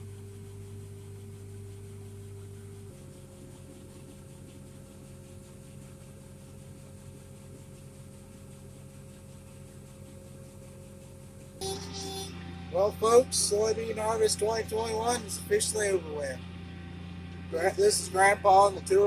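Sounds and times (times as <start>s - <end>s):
diesel engine running: 11.6s - 19.0s.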